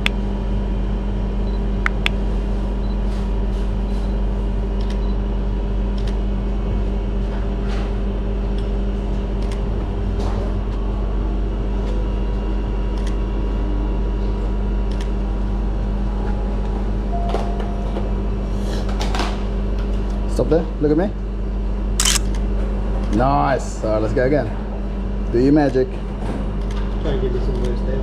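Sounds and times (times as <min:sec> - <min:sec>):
short sharp clicks: 0:22.0 - 0:22.3.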